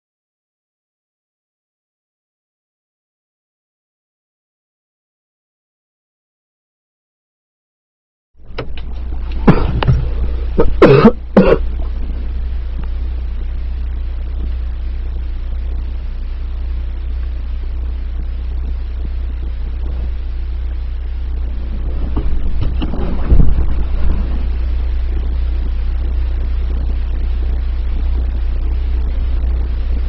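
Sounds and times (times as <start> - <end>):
steady low rumble: 8.4 - 30.0
person coughing: 9.4 - 9.8, 10.5 - 11.8.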